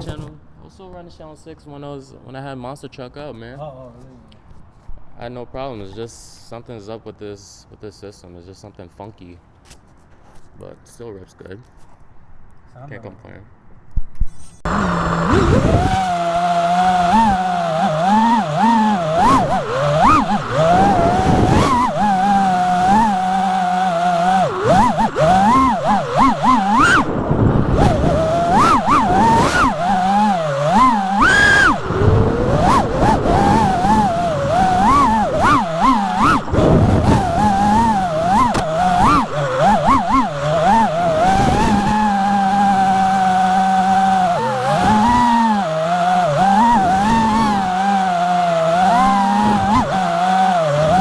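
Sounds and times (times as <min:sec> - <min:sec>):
drone motors whining: 0:14.2 - 0:51.0.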